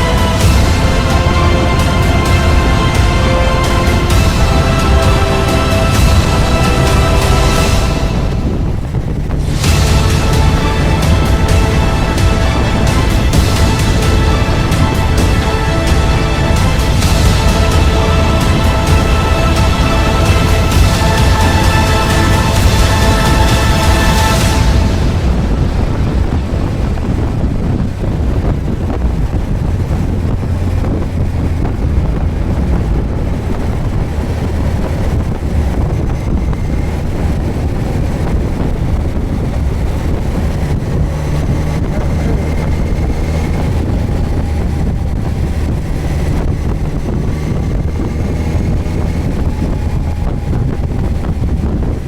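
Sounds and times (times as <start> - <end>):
motorcycle engine running: 0.0 - 52.0
wind noise on microphone: 0.0 - 52.0.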